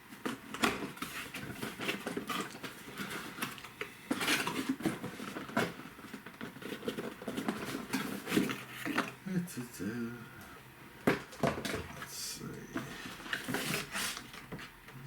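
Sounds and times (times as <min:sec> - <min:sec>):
packaging rustling scrape: 0:00.3 - 0:09.1, 0:12.6 - 0:14.8.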